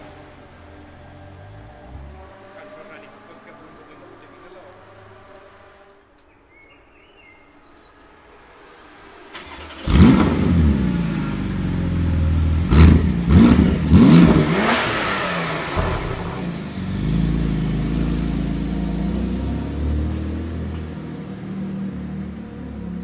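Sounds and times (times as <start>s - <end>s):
car engine starting and revving: 9.0s - 23.0s.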